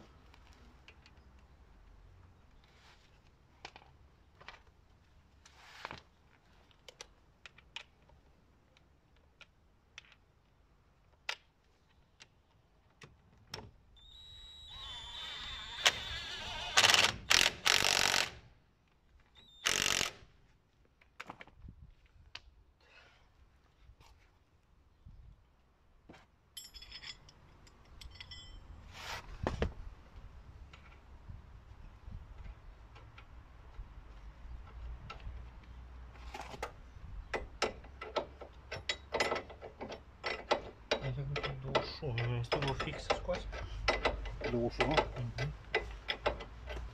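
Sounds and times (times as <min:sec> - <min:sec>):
power tool bursts: 0:14.6 - 0:18.4, 0:19.6 - 0:20.2
hand tools clinking: 0:26.6 - 0:28.9, 0:37.6 - 0:46.9
ratchet wrench clicking: 0:40.2 - 0:46.8.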